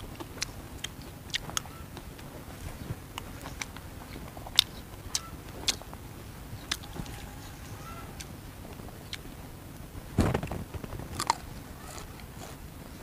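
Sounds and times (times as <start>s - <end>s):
person chewing: 0.0s - 2.3s, 3.1s - 5.9s, 6.6s - 7.3s, 11.1s - 12.6s
wet mouth clicks and smacks: 6.7s - 6.9s.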